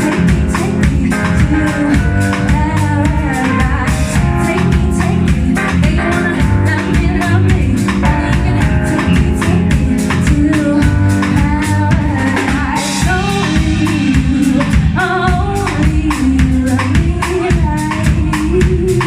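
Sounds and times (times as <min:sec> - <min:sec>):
drum kit beat: 0:00.0 - 0:19.0
live band playing: 0:00.0 - 0:19.0
woman singing: 0:00.0 - 0:19.0.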